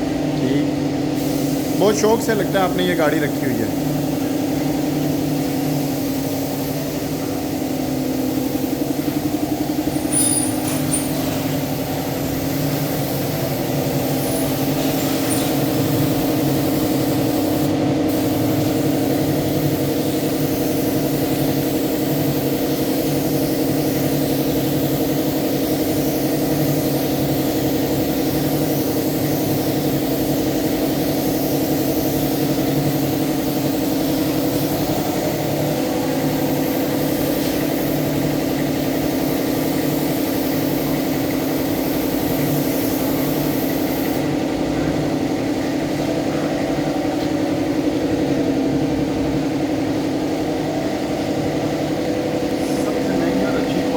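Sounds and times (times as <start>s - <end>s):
machine motor droning hum: 2.2s - 40.0s.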